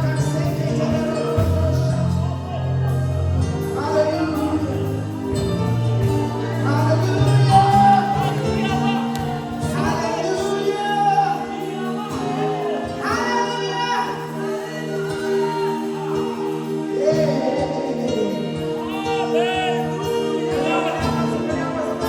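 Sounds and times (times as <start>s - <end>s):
bass: 0.0s - 13.3s
gospel singers with choir: 0.0s - 22.0s
keyboard chords: 0.0s - 22.0s.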